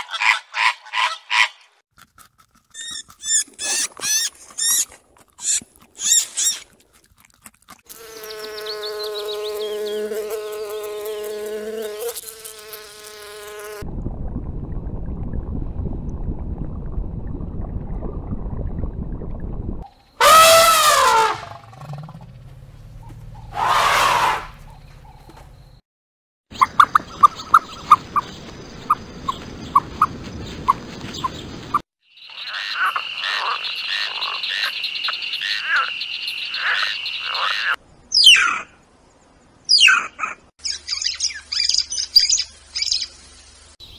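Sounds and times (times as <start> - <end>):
animal squeaks: 2.7 - 6.7, 36.7 - 38.7
low rushing underwater noise: 13.9 - 24.7
elephant trumpeting: 20.2 - 22.3, 23.4 - 24.7.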